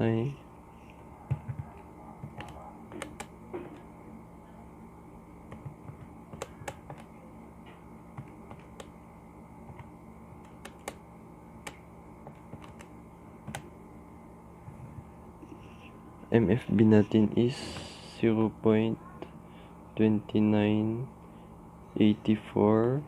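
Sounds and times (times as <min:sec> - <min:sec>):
steady low hum: 0:00.0 - 0:23.0
calculator keys clicking: 0:02.2 - 0:03.3, 0:09.7 - 0:11.0, 0:11.6 - 0:12.9.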